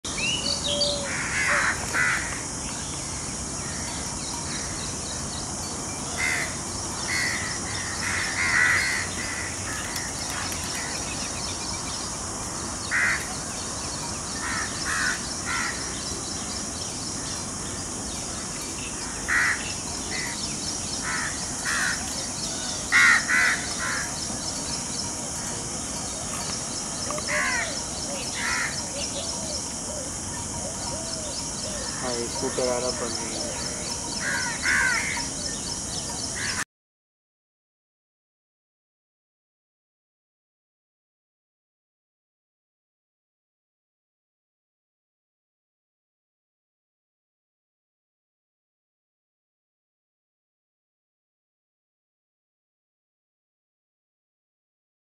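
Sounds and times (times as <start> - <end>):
steady high hiss: 0.1 - 36.6
bird cawing harshly: 1.1 - 2.3, 7.1 - 9.8, 22.9 - 24.1.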